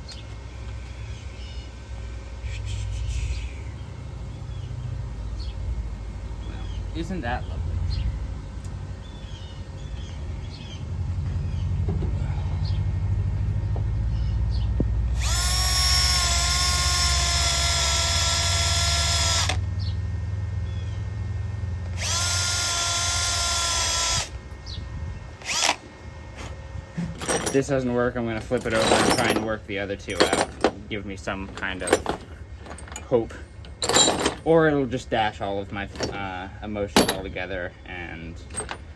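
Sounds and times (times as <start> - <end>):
steady low rumble: 0.0 - 16.6, 23.6 - 38.9
power tool whining: 15.0 - 19.9, 21.8 - 24.7, 25.4 - 26.5.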